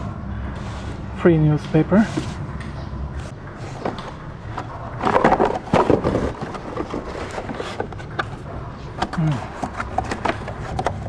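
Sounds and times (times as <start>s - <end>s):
rustling: 3.2s - 8.3s
handling clicks and knocks: 3.8s - 11.0s.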